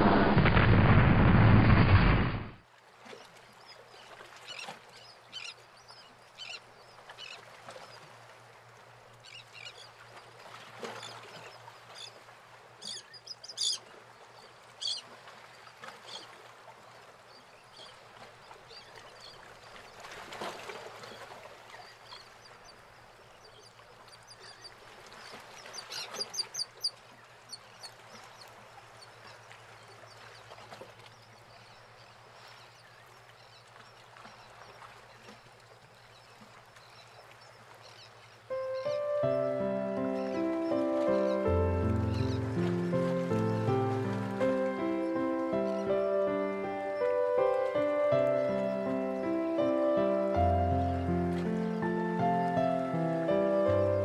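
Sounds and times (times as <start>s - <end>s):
birds calling: 36.2s - 54.0s.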